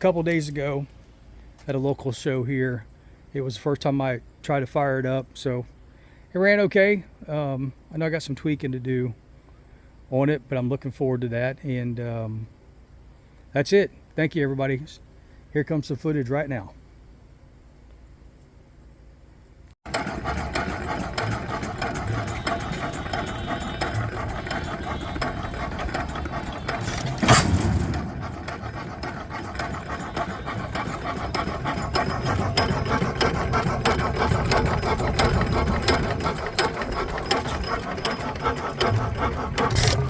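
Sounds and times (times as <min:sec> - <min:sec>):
stationary gas engine running: 0:19.9 - 0:40.0
loud bang: 0:27.0 - 0:29.1.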